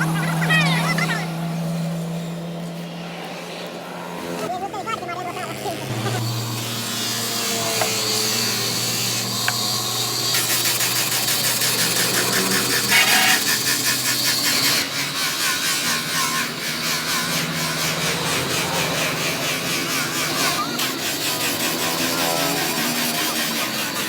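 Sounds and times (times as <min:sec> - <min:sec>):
hand-sanding plastic lens: 0:04.8 - 0:24.0.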